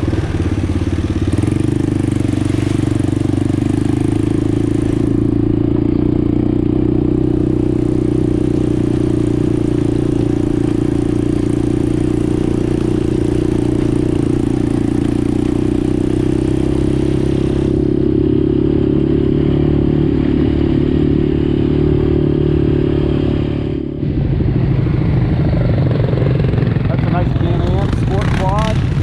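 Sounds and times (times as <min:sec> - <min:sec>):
atv engine running: 0:00.0 - 0:29.0.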